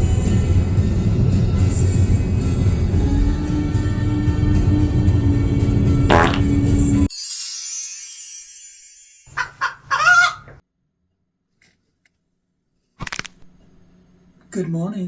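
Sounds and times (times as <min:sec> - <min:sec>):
short honking calls: 0:06.1 - 0:06.6.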